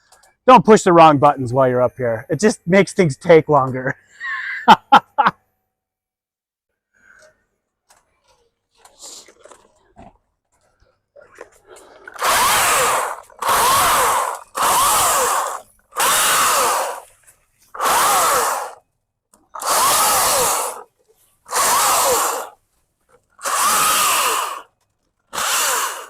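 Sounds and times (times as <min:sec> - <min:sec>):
electric chainsaw motor whine: 0:12.1 - 0:17.1, 0:17.7 - 0:18.8, 0:19.5 - 0:20.9, 0:21.5 - 0:22.6, 0:23.3 - 0:26.0.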